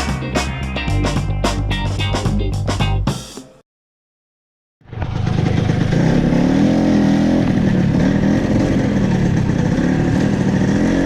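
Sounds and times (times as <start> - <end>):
scooter two-stroke engine running: 4.9 - 11.0.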